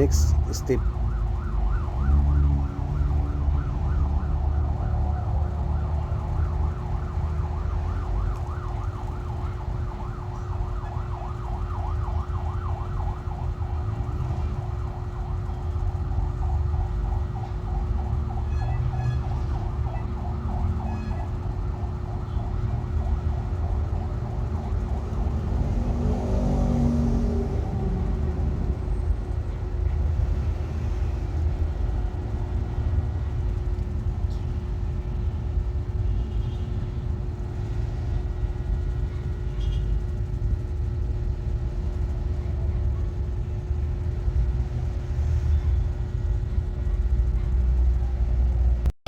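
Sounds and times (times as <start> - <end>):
siren yelping: 0.0 - 28.7
low traffic rumble: 0.0 - 48.9.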